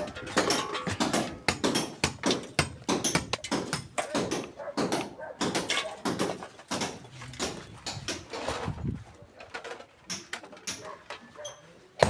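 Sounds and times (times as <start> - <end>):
irregular knocks and clatters: 0.0 - 8.3.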